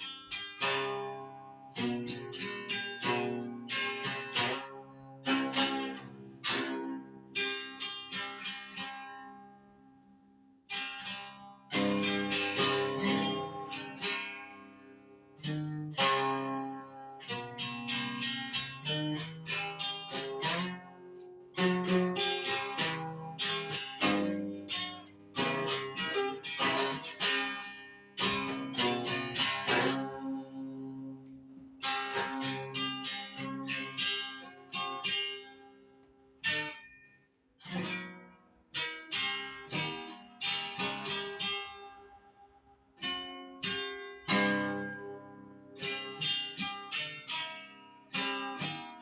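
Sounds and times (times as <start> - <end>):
acoustic guitar picked and strummed: 0.0 - 49.0.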